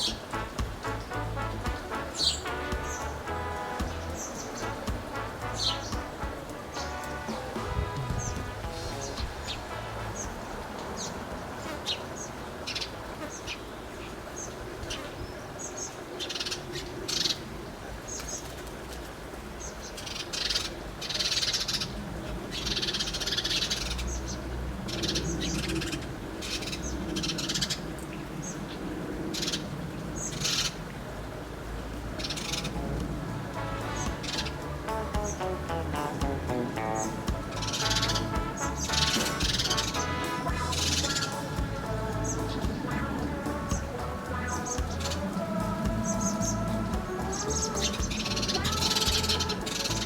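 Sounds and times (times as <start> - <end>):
small birds chirping: 0.0 - 18.6, 32.2 - 50.0.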